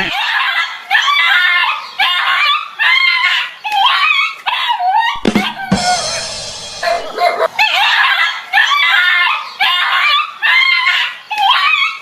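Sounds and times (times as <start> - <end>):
dog barking and yelping: 3.9 - 6.0, 6.8 - 10.7
steady sound: 5.2 - 7.7.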